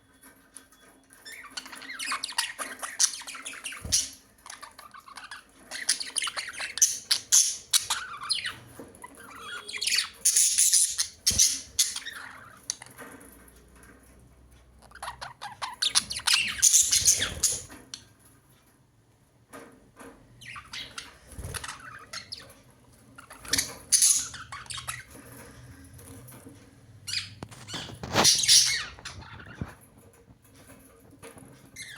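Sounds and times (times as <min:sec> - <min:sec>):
budgerigars chattering and squawking: 0:01.3 - 0:13.0, 0:14.8 - 0:18.0, 0:20.4 - 0:22.6, 0:23.2 - 0:25.8, 0:27.0 - 0:29.8.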